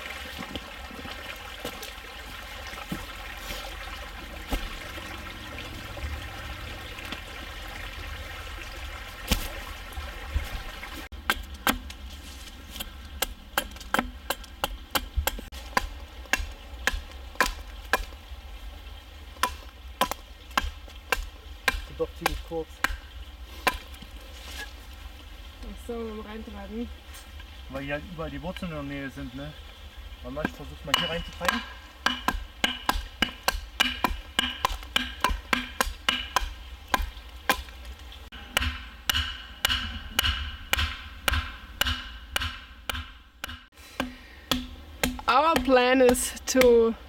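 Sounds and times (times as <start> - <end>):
water trickling: 0.0 - 11.1, 14.1 - 38.4
wood being struck: 11.1 - 12.0, 12.8 - 18.2, 19.4 - 24.0, 30.4 - 46.8.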